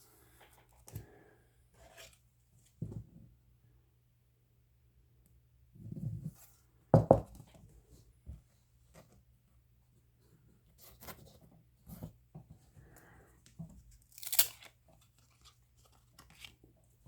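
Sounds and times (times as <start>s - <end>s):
cards rustling and clicking: 14.0s - 16.7s
packaging crinkling tear: 14.1s - 16.6s.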